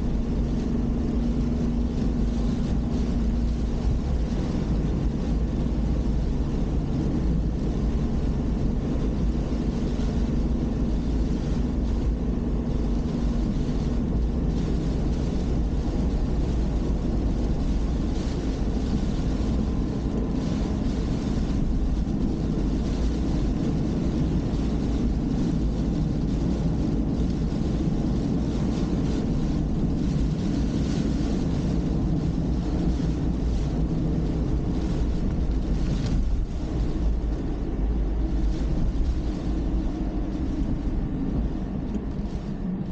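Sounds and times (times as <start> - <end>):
car engine and tyre noise: 0.0 - 42.9.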